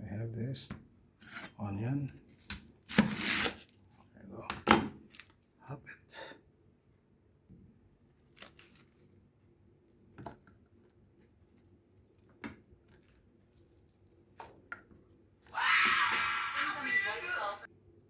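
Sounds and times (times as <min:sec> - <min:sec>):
knife cutting onion on board: 0:02.4 - 0:03.6.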